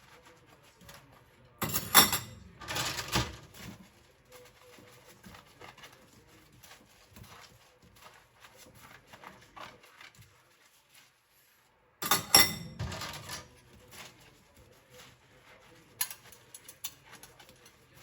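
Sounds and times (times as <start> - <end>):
dishes scrubbed in a sink: 0.0 - 18.0
dishes clattering: 1.6 - 3.8, 12.0 - 13.6.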